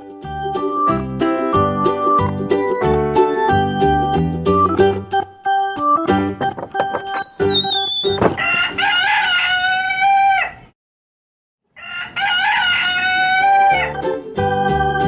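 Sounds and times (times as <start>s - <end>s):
keyboard music: 0.0s - 8.3s, 13.7s - 15.0s
rooster crowing: 8.2s - 10.7s, 11.7s - 14.0s.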